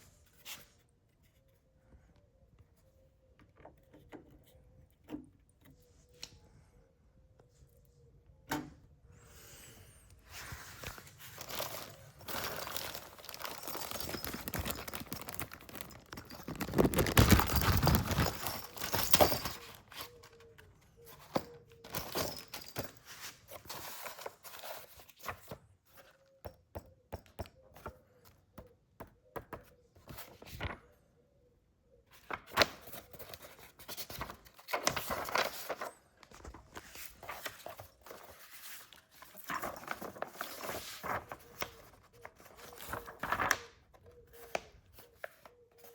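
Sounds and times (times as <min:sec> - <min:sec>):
wrapping tearing and crinkling: 0:10.8 - 0:20.4.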